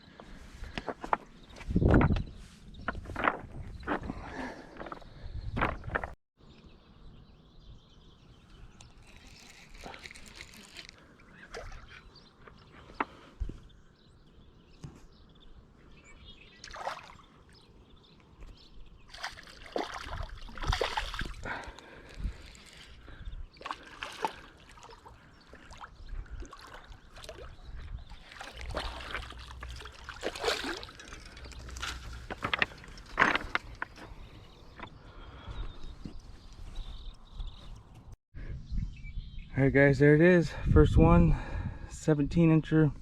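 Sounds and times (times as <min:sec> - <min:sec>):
river water sloshing and trickling: 0:08.8 - 0:12.6, 0:16.5 - 0:17.8, 0:19.0 - 0:34.8.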